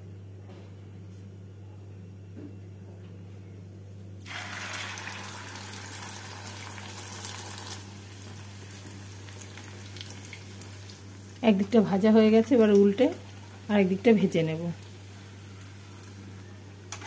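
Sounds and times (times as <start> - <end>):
bread frying in hot oil: 4.2 - 17.0.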